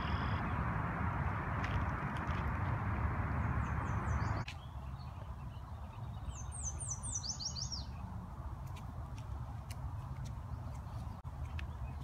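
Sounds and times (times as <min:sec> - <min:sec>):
songbird singing: 0:00.0 - 0:00.7, 0:03.0 - 0:12.0
steady rushing noise: 0:00.3 - 0:04.5.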